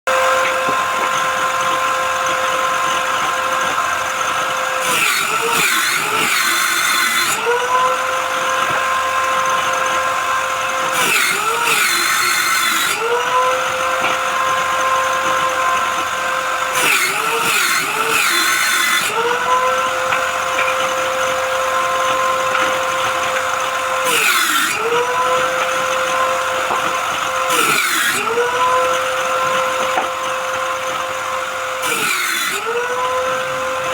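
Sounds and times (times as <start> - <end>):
power tool motor whining: 0.1 - 33.9
wood cutting hiss: 10.9 - 32.8.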